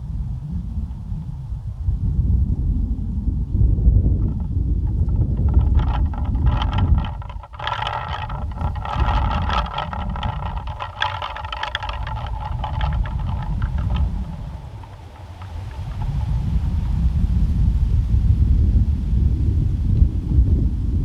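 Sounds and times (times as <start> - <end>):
wind rumbling on microphone: 0.0 - 21.0
pinwheel whirring and clicking: 4.3 - 16.5.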